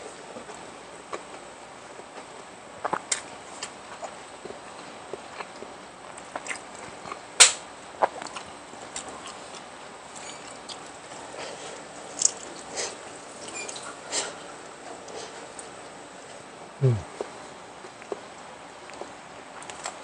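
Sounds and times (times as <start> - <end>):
person chewing and biting: 5.1 - 7.3.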